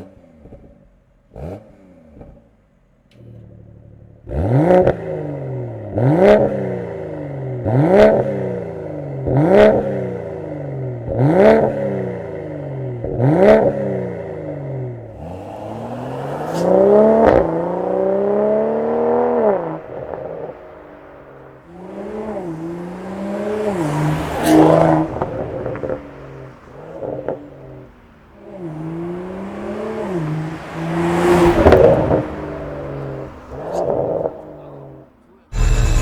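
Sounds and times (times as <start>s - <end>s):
car engine accelerating: 0.0s - 36.0s
exhaust cracks: 14.9s - 28.6s, 35.5s - 36.0s.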